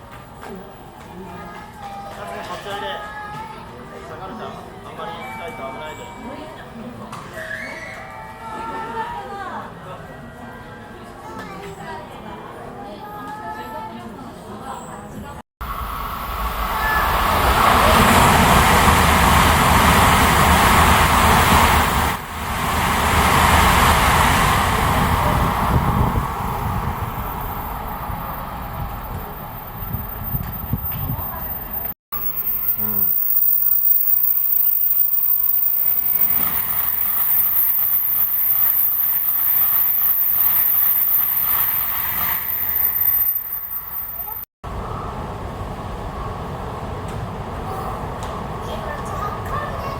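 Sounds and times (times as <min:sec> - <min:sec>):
bullet train rushing past: 0:15.6 - 0:49.9.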